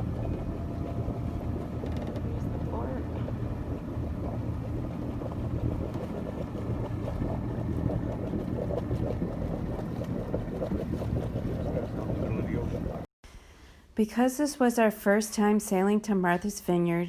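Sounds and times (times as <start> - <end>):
boat engine humming: 0.0 - 13.1
wind: 0.0 - 13.9.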